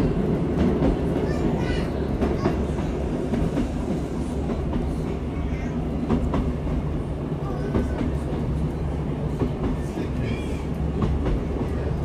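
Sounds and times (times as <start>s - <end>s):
train rumbling inside carriage: 0.0s - 12.0s.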